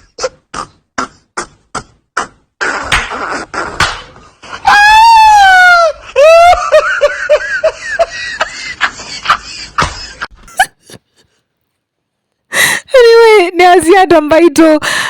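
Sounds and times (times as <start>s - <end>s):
high-pitched laughing: 4.6s - 11.0s.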